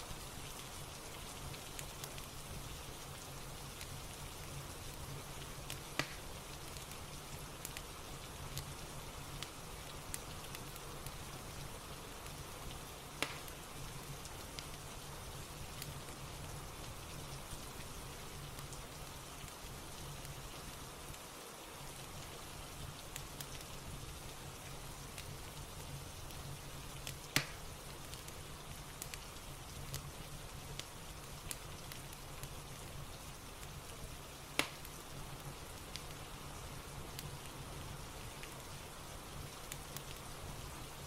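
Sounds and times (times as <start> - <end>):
fireplace crackling: 0.0 - 41.0
steady rain: 0.0 - 41.0.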